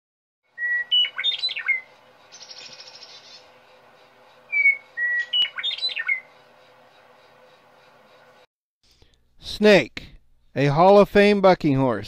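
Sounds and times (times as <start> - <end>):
bird whistling song: 0.5 - 3.5, 4.5 - 6.4
dry buzzy bird trill: 0.6 - 8.4.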